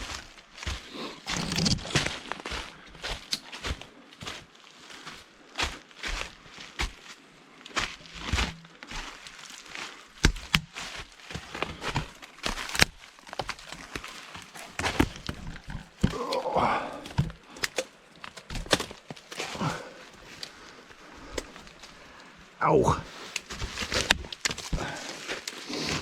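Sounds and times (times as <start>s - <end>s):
footsteps crunching dry leaves: 0.0s - 15.6s, 23.1s - 26.0s
twigs snapping: 8.3s - 20.6s, 23.3s - 26.0s.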